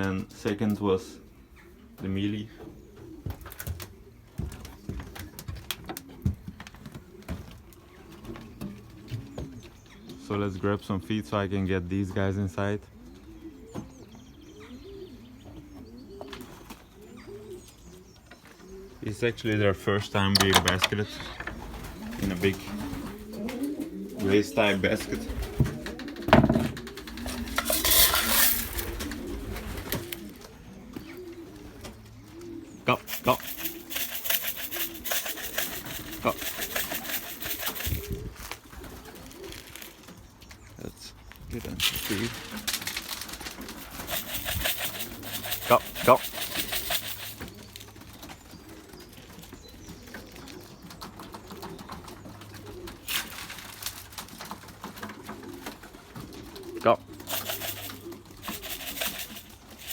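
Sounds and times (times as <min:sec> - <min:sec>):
pigeons cooing: 0:00.0 - 0:59.9
loud rustle: 0:33.0 - 0:38.6, 0:41.8 - 0:47.6, 0:57.3 - 0:59.9.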